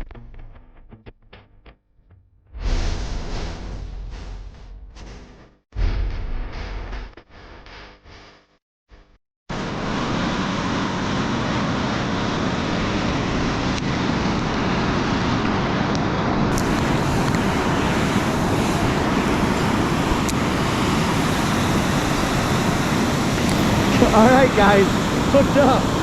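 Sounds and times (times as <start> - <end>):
water rushing below a dam: 9.6 - 26.0.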